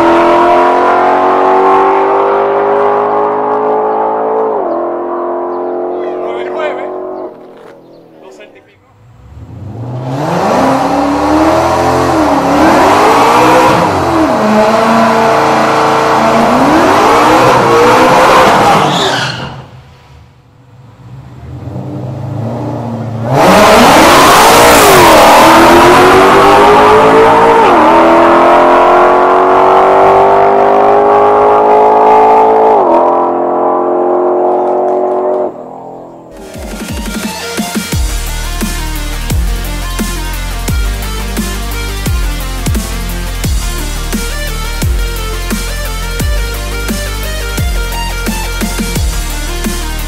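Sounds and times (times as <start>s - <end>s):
car accelerating with upshifts: 0.0s - 8.2s, 8.9s - 18.9s, 20.7s - 36.4s
car engine revving: 0.0s - 19.7s, 20.4s - 50.0s.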